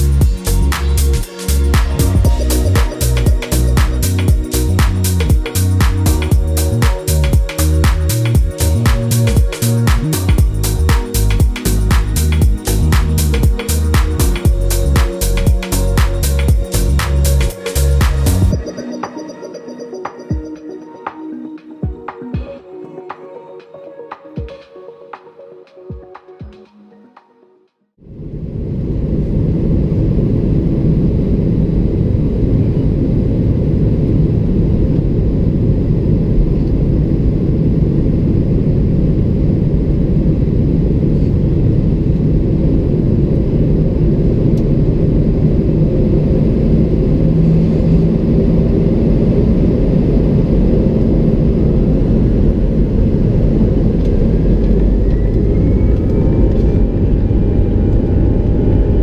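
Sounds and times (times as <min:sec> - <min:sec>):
jet engines and airflow in cabin: 0:28.1 - 0:59.0.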